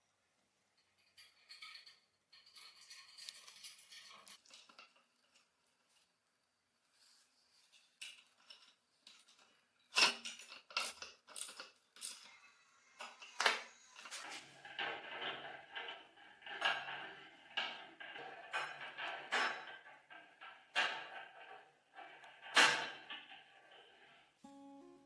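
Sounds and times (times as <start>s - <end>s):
metal rattling and scraping: 1.0s - 5.0s, 13.0s - 24.4s
metal parts clinking: 1.2s - 4.8s, 8.0s - 12.4s.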